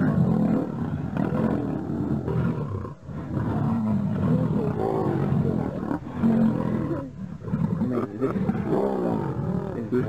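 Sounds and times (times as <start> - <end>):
lions growling: 0.0 - 10.0.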